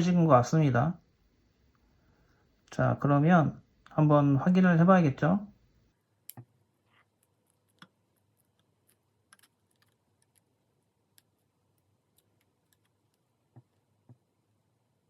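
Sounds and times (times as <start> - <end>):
small clicks and taps: 6.3 - 10.5, 11.1 - 14.2.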